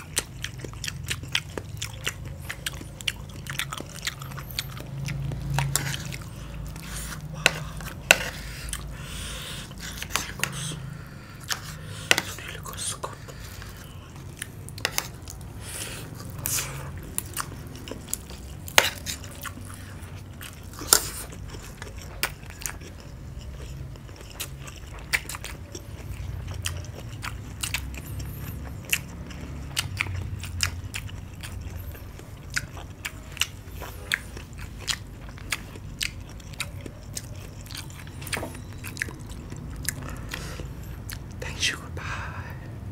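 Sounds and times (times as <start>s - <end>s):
chewing crunchy food: 0.0s - 42.9s.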